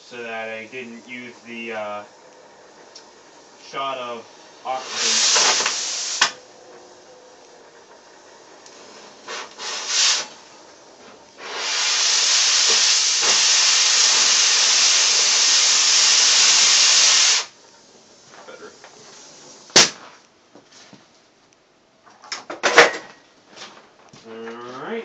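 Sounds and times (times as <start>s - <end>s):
cutting torch hissing: 0.0s - 20.0s
cutting torch blasts: 0.0s - 20.2s.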